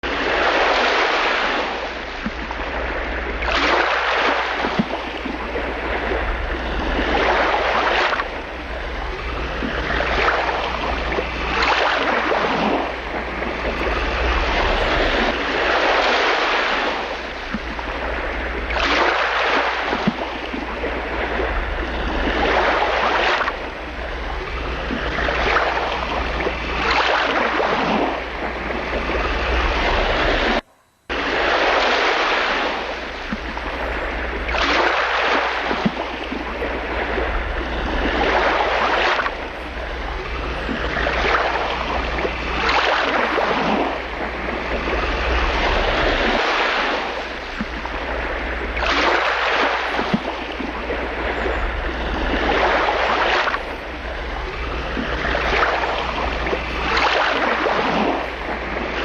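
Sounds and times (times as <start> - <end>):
waves breaking and washing in: 0.0 - 59.0
wind rumble on microphone: 0.0 - 59.0.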